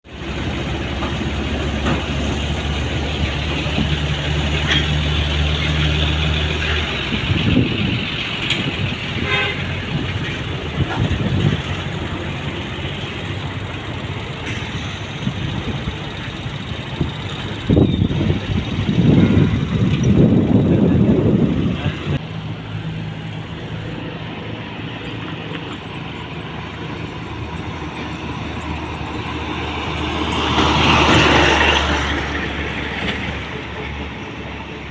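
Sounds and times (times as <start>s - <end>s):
buses and trucks passing: 0.0s - 34.9s
heavy vehicle engine droning: 0.0s - 34.9s
vehicle horn toot: 9.2s - 9.9s, 19.0s - 19.9s.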